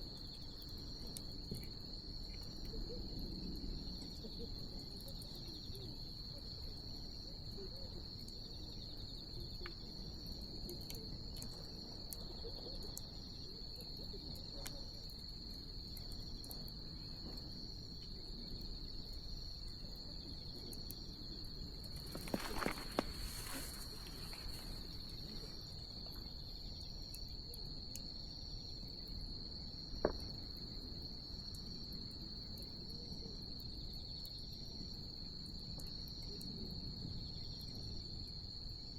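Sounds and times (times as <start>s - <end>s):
crickets trilling: 0.0s - 38.9s
fire popping: 21.8s - 26.2s
fire hissing flare-up: 21.9s - 25.6s
wood fire crackling: 21.9s - 26.2s.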